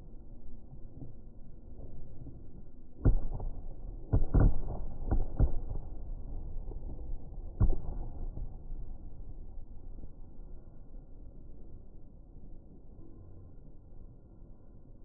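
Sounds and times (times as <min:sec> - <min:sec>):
fireworks booming: 0:03.0 - 0:09.6.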